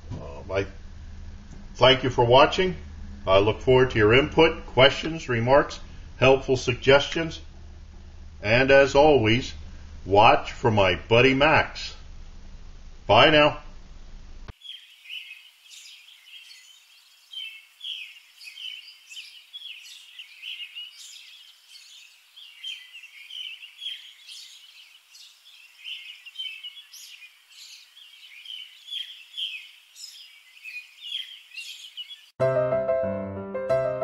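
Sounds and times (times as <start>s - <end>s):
small birds chirping: 14.5s - 32.4s.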